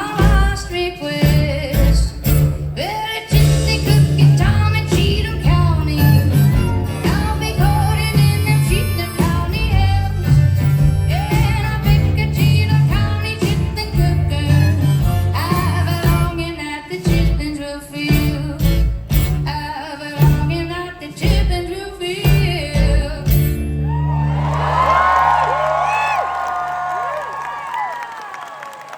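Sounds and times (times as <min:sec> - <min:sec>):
live band playing country song: 0:00.0 - 0:25.2.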